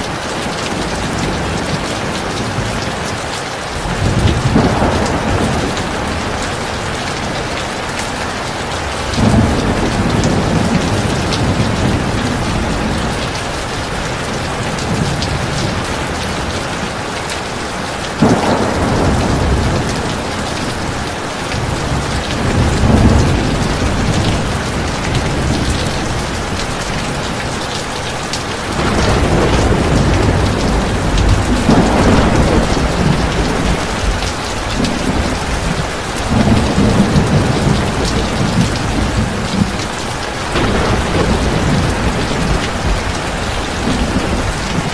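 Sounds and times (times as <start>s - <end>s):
heavy rain: 0.0s - 44.9s
thunder rumbling: 3.8s - 16.8s, 18.2s - 27.6s, 28.5s - 44.9s.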